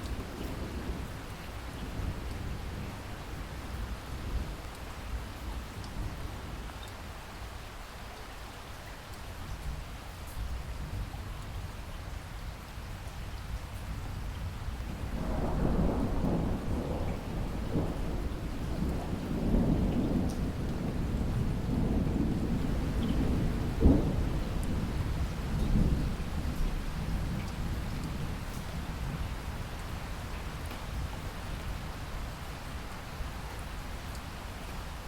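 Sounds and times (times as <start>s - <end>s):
steady rain: 0.0s - 35.0s
rolling thunder: 14.9s - 29.4s.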